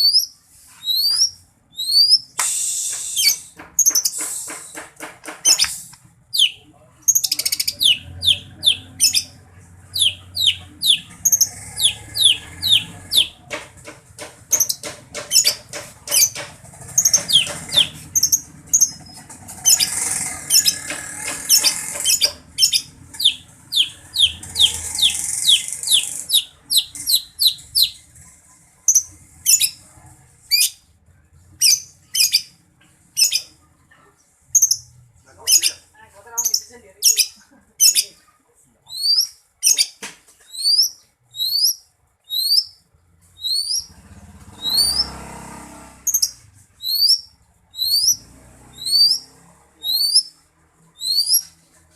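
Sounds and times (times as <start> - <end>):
bird singing whistled notes: 0.0 - 4.1, 6.3 - 6.6, 22.1 - 28.0, 40.5 - 42.8, 43.4 - 43.9, 46.1 - 48.2, 48.8 - 50.3, 51.0 - 51.5
bird chattering warble: 5.4 - 13.4, 14.5 - 29.8.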